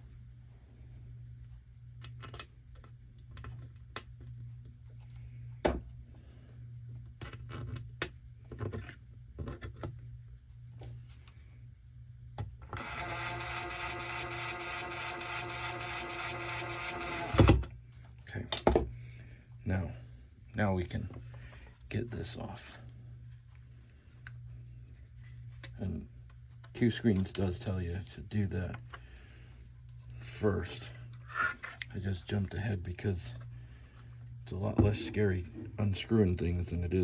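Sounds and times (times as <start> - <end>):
small parts and screws clicking: 12.6 - 17.6
cordless screw gun running: 12.7 - 17.7.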